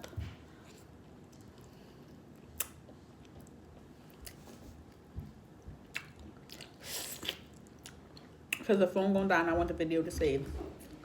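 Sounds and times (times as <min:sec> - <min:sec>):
soft chewing: 0:00.0 - 0:08.6.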